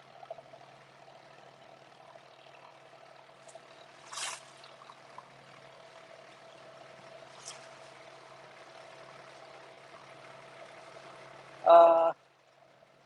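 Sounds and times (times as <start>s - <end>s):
boat engine hum: 0.0s - 13.0s
water splashing along a boat hull: 3.4s - 5.4s.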